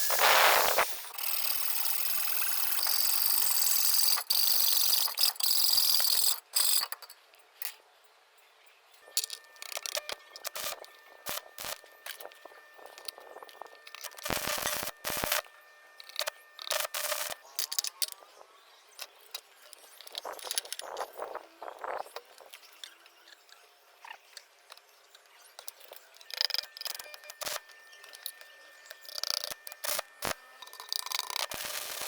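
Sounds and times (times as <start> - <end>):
scrapes clicks and knocks of parts: 9.0 - 18.3, 19.0 - 31.6.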